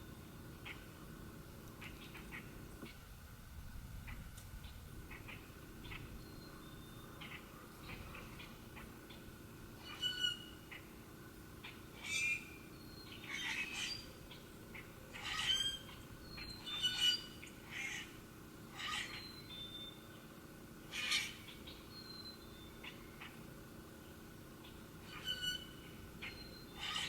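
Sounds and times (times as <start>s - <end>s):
faint steady hum: 0.0s - 27.0s
birds squawking: 9.8s - 10.9s, 11.6s - 19.4s, 20.9s - 21.8s, 24.6s - 27.0s.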